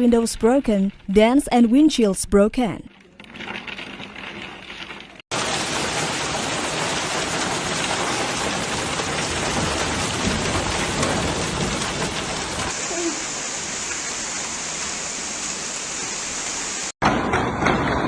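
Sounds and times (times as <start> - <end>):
hail clattering on surfaces: 3.2 - 14.2.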